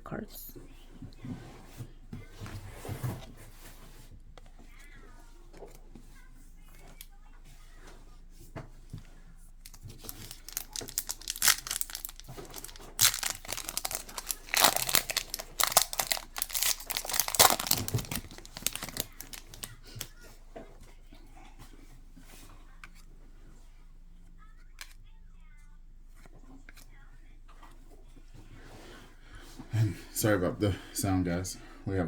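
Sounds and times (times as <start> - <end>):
foil wrapper crinkling and tearing: 9.6 - 20.1.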